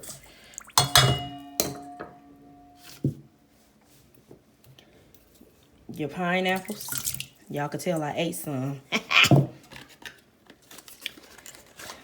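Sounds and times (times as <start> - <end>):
bowl ringing: 0.8 - 3.0.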